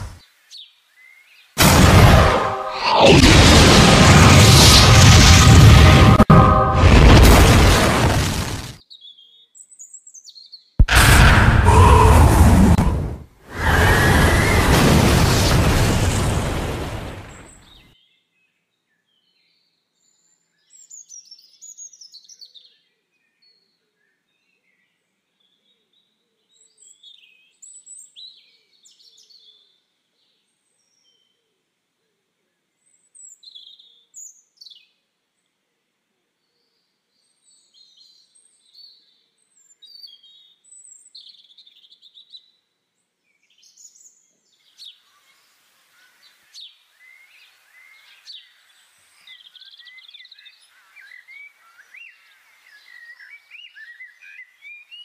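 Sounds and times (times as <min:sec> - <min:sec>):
birdsong chirps and whistles: 0:17.3 - 0:25.6, 0:32.8 - 0:34.9, 0:36.6 - 0:42.6, 0:43.2 - 0:55.0.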